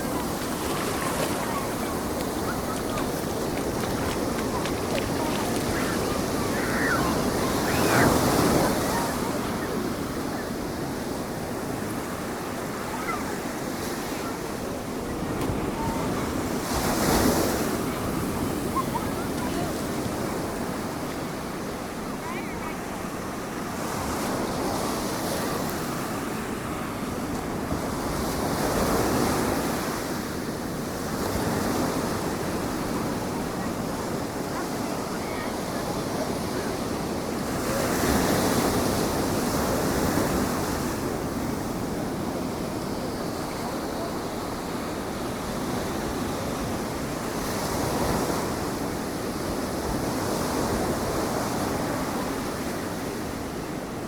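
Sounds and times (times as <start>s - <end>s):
wind on microphone: 0.0s - 21.8s
surf breaking on beach: 0.0s - 54.0s.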